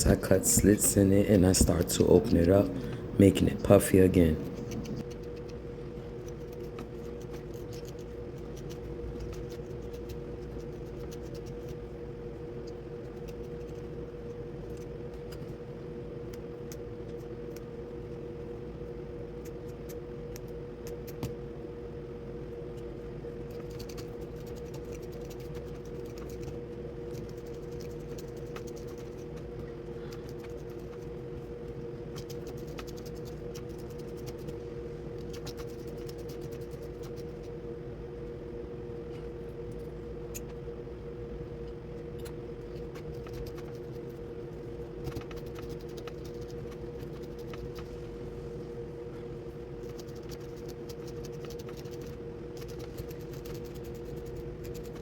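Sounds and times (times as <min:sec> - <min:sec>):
two-tone machine hum: 0:00.0 - 0:05.9, 0:26.1 - 0:55.0
scissors snipping hair: 0:23.5 - 0:29.5.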